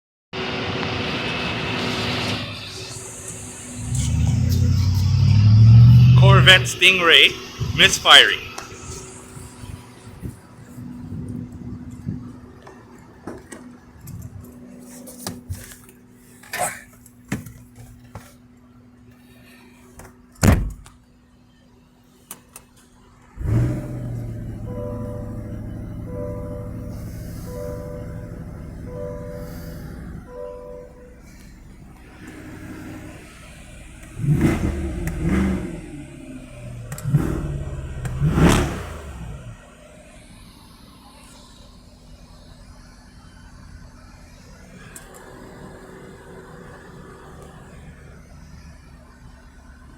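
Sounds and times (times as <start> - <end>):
car engine revving: 0.6 - 9.8, 23.4 - 39.7
steady low hum: 23.4 - 35.2.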